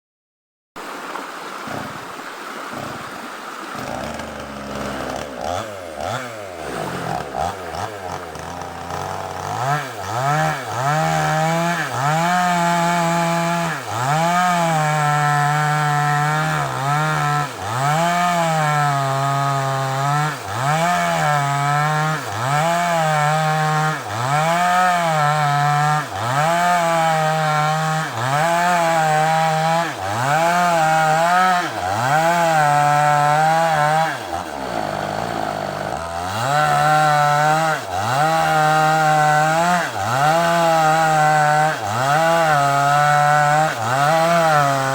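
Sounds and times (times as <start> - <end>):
chainsaw cutting log: 1.5 - 44.9.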